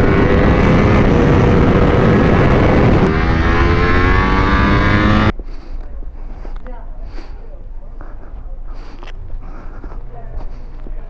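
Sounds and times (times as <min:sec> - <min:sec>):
vehicle engine running: 0:00.0 - 0:05.3
heavy rushing noise: 0:00.0 - 0:05.4.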